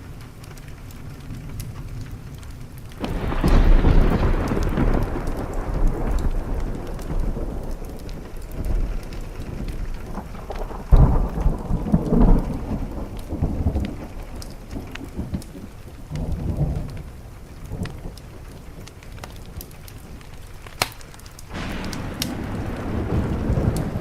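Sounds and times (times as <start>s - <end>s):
rain on a window: 0.0s - 24.0s
thunder rumbling: 0.1s - 24.0s.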